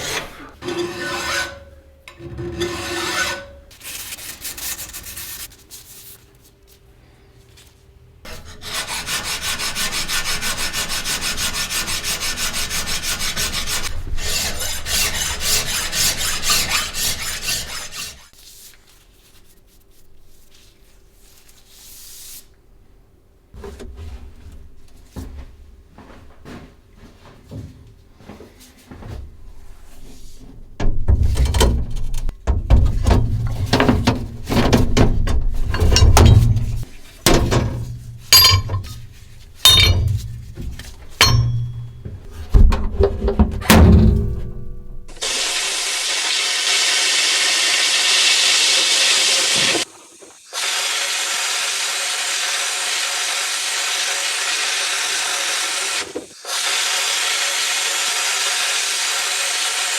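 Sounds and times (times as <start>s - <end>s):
metal parts knocking and clinking: 34.8s - 45.1s.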